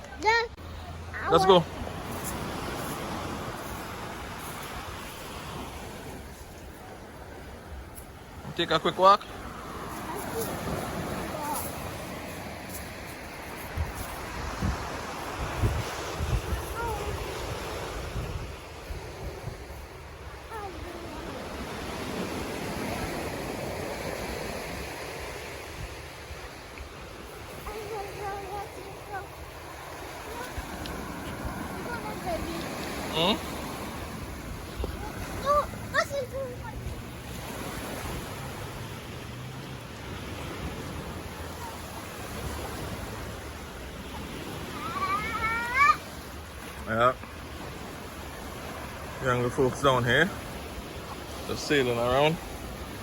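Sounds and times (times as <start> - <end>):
waves washing onto a beach: 0.0 - 53.0
wind buffeting the microphone: 9.7 - 45.6.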